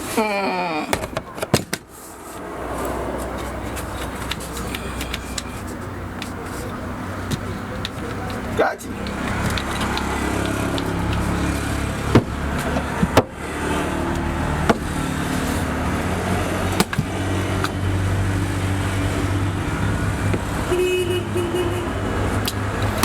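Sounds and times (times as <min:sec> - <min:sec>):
sharp knocks: 0:12.0 - 0:13.4, 0:14.6 - 0:15.0.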